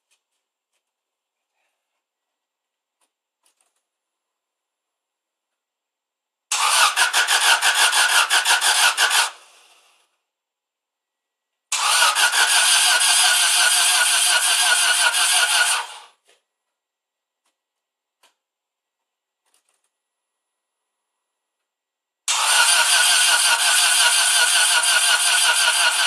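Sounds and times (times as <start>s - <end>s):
starter cranking engine: 6.5s - 9.6s, 11.7s - 16.1s, 22.3s - 26.0s.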